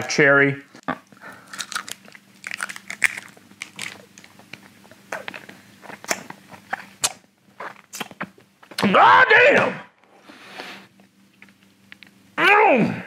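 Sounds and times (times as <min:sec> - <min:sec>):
man crunching hard candy: 0:00.7 - 0:08.2.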